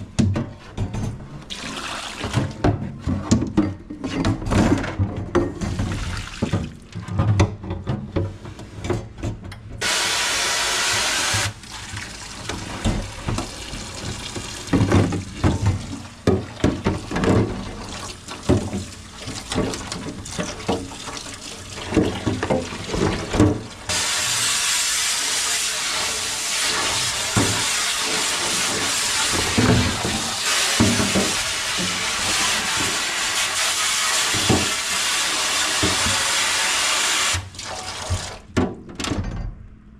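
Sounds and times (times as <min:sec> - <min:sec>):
knocks and clatter of items: 0:00.0 - 0:01.4, 0:02.2 - 0:09.8, 0:14.4 - 0:17.8
tap running into a sink: 0:09.8 - 0:24.5, 0:25.4 - 0:36.6.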